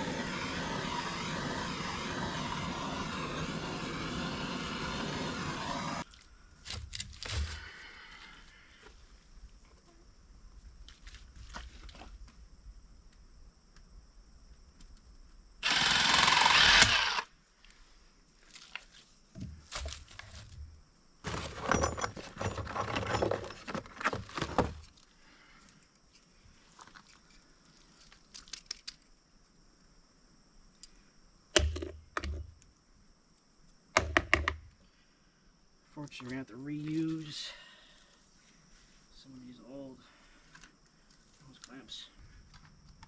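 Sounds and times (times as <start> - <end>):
power tool burst: 0.0 - 6.0, 15.6 - 17.3.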